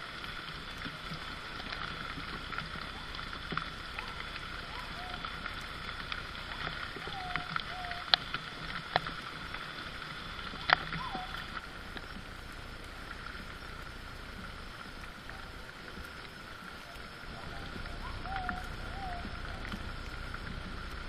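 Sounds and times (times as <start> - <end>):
outdoor background hiss: 0.0 - 21.0
short curved calls: 3.8 - 8.6, 10.2 - 11.7, 16.9 - 20.0.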